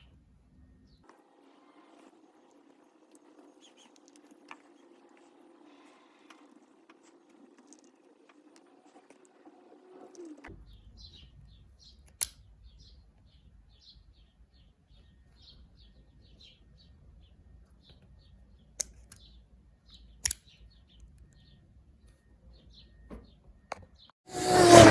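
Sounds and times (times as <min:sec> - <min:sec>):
bird chirping: 0:03.4 - 0:05.3, 0:10.2 - 0:24.1
sharp clicks: 0:20.2 - 0:21.2.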